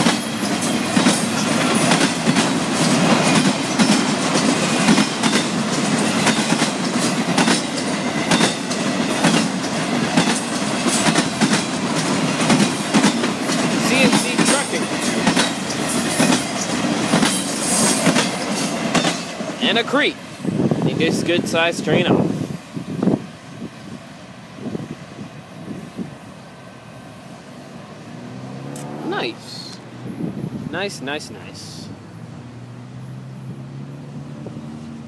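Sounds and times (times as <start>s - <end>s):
wheels clacking over rail joints: 0.0s - 21.6s
freight train wheels rumbling on rail: 0.0s - 35.0s.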